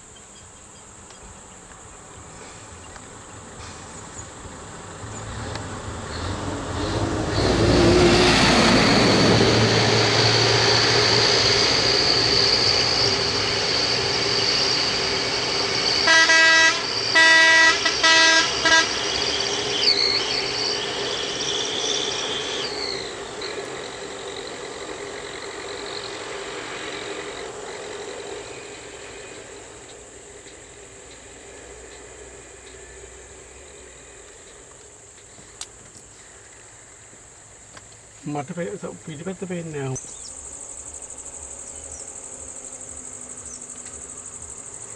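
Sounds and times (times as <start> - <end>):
heavy vehicle engine running: 2.1 - 44.9
vehicle horn blasts: 15.9 - 19.6.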